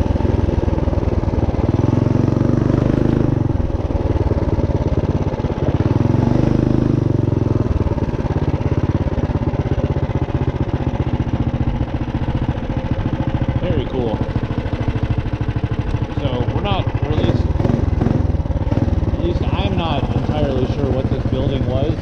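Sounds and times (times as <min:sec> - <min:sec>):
small engine revving: 0:00.0 - 0:04.2, 0:04.9 - 0:08.3, 0:15.8 - 0:22.0.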